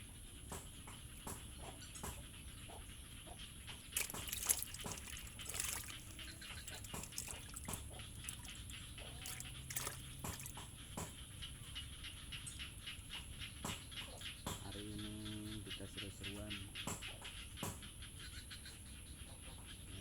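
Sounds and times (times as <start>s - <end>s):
water dripping and splashing: 3.7s - 11.2s.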